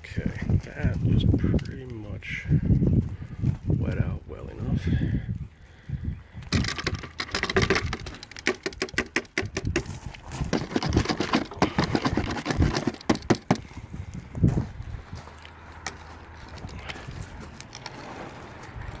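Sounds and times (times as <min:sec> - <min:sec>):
clicking and tapping on fiberglass: 0:06.5 - 0:13.7.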